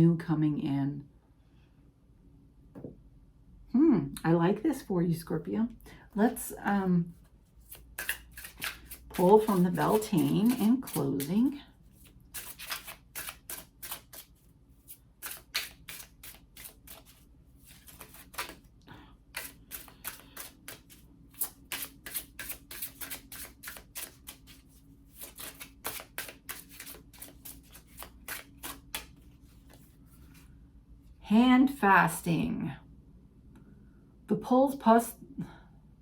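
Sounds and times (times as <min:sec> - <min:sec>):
cards being shuffled: 0:07.1 - 0:18.7, 0:19.3 - 0:30.4.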